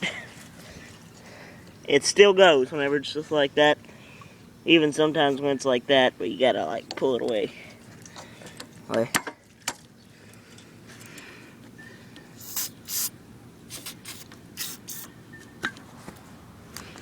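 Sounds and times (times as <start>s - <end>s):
brief hisses: 12.4s - 13.1s, 13.7s - 15.1s
short scraping sounds: 13.7s - 15.1s.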